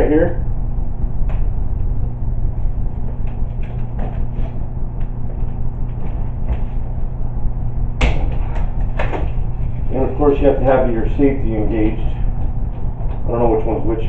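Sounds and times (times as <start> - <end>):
low rumble and hum: 0.0 - 14.0.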